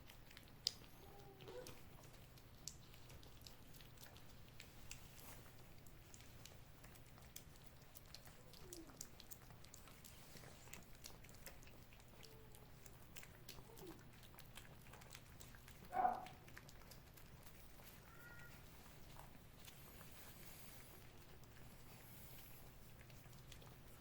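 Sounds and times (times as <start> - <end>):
cats licking and chewing: 0.0 - 24.0
cat meowing: 18.0 - 18.7.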